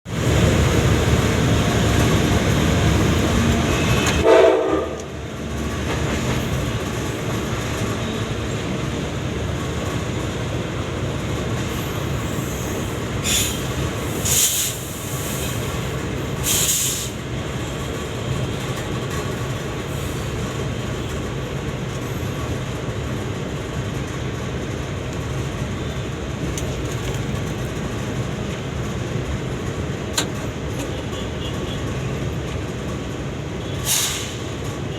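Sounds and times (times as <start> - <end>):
train rumbling on rails: 0.0 - 34.9
train horn blast: 3.7 - 5.1.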